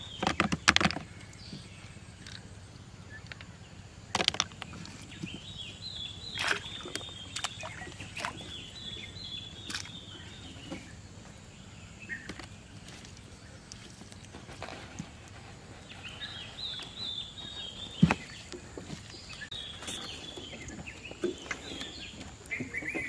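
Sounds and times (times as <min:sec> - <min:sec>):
bird chirping: 0:00.0 - 0:23.0.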